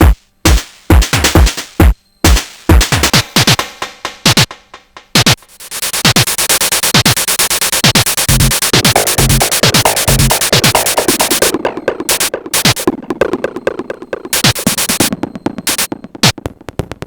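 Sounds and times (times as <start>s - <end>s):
deep drum machine kicks: 0.0s - 5.4s, 7.8s - 17.0s
fast hissing hi-hat hits: 1.6s - 11.5s, 14.3s - 15.1s, 15.7s - 15.9s.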